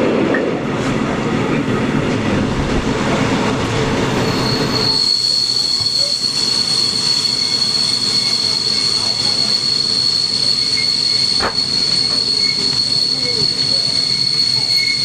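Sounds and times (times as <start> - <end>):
train rolling rumble: 0.0 - 15.0
high-pitched train squeal: 4.0 - 15.0.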